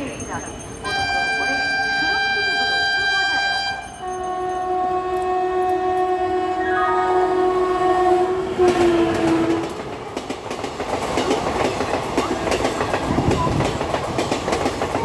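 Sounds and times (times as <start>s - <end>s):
train horn: 0.9s - 10.0s
train wheels clattering over rail joints: 8.7s - 15.0s.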